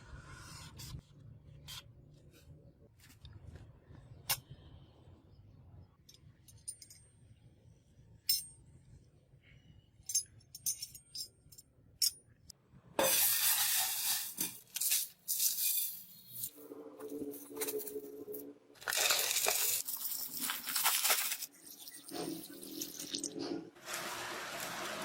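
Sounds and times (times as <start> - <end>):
metal parts and tools clinking: 6.0 - 7.3, 10.0 - 12.5.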